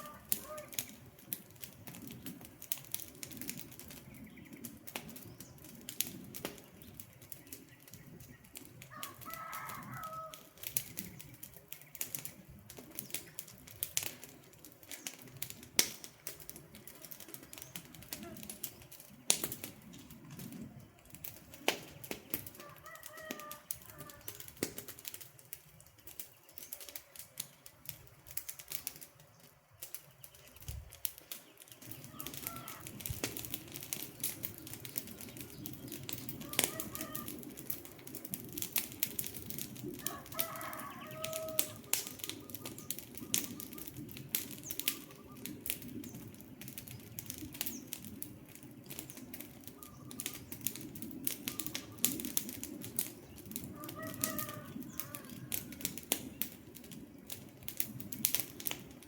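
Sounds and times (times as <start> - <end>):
bird calling: 0.0 - 0.9, 31.4 - 33.0, 35.1 - 37.4, 40.0 - 44.0, 44.6 - 45.6, 49.7 - 50.6
campfire crackling: 0.0 - 59.0
rush of flames: 0.0 - 59.0.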